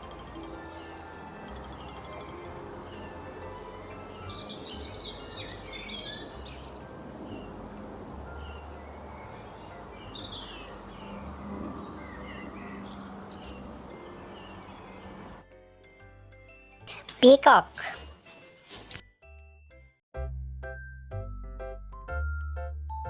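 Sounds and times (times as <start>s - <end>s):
birds chirping: 0.0s - 15.4s
outdoor background noise: 0.0s - 15.5s.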